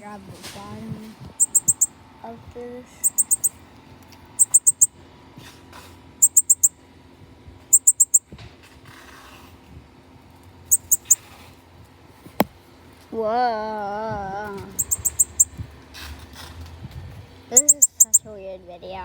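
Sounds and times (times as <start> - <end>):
bird giving rapid high chirps: 1.4 - 1.9, 3.0 - 3.6, 4.4 - 4.9, 6.2 - 6.7, 7.7 - 8.2, 10.7 - 11.2, 14.7 - 15.6, 17.5 - 18.2.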